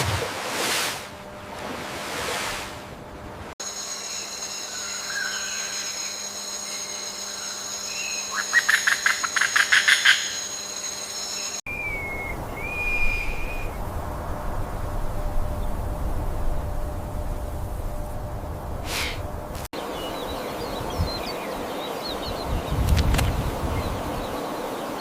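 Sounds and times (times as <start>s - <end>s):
high-pitched whine: 3.6s - 22.4s
short whistled calls: 11.7s - 13.8s.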